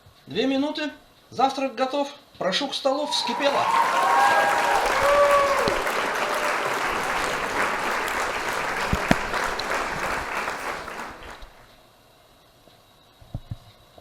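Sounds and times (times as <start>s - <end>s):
applause: 3.0s - 11.8s.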